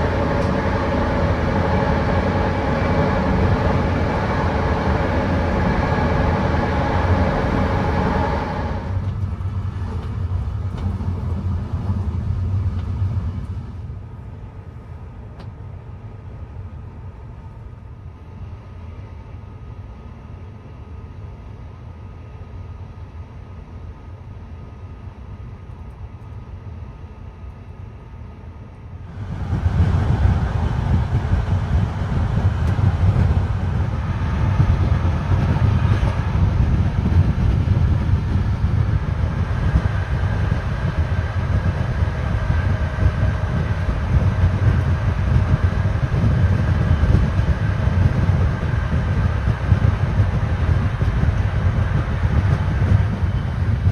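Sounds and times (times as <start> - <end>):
train rumbling on track: 0.0 - 53.9.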